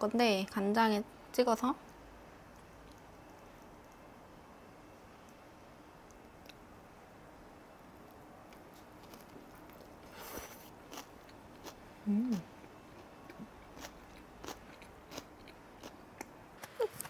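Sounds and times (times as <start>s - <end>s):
person biting and chewing: 8.8s - 12.4s, 13.0s - 17.0s
person humming: 12.0s - 12.5s.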